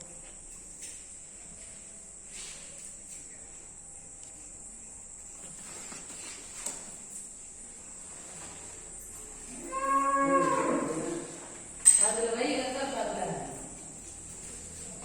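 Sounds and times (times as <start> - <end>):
insects chirring: 6.8 - 14.3.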